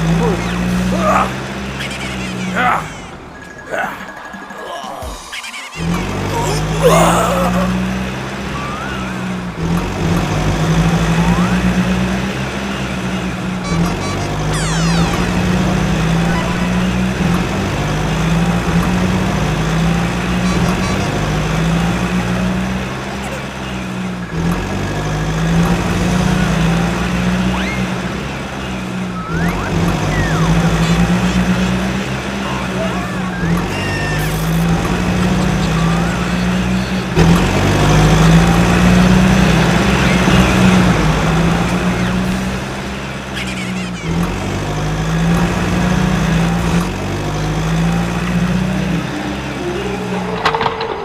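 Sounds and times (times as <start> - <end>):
toy vehicle motor drone: 1.7 - 3.1, 8.4 - 9.6, 13.6 - 17.6, 26.0 - 51.0.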